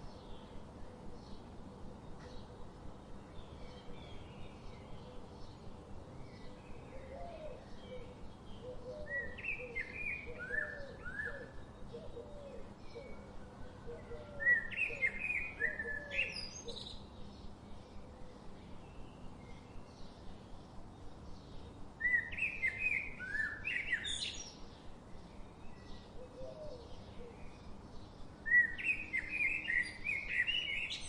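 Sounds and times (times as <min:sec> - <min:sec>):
faint background hiss: 0:00.0 - 0:31.0
songbirds chirping: 0:00.0 - 0:31.0
low repeated bird call: 0:06.7 - 0:17.0.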